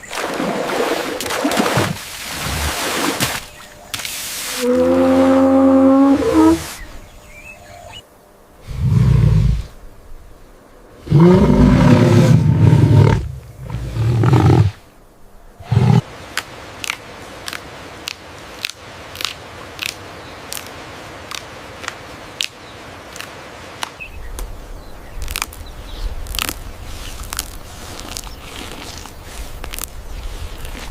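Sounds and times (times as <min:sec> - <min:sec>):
large animal roaring: 0:11.0 - 0:14.8.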